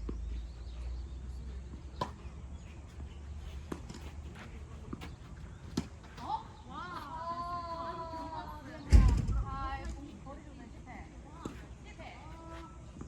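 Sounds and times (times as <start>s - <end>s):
low steady rumble: 8.9s - 10.1s.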